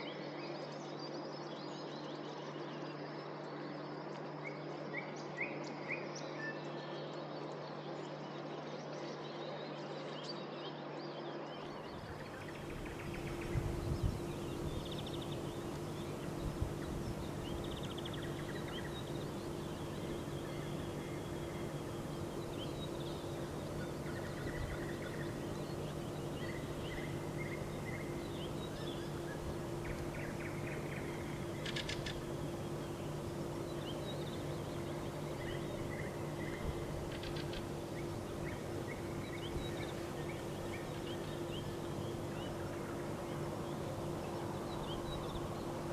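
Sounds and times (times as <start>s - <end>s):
songbirds singing: 0.0s - 45.9s
low hum: 11.7s - 45.9s
distant city noise: 11.8s - 45.9s.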